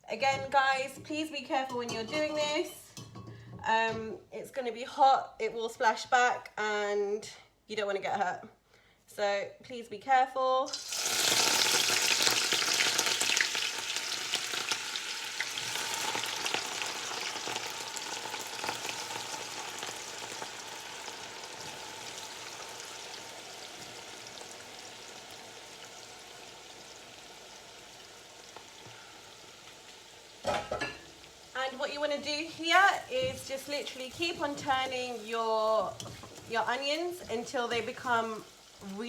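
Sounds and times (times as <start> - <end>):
onions sizzling in hot oil: 10.7 - 39.0.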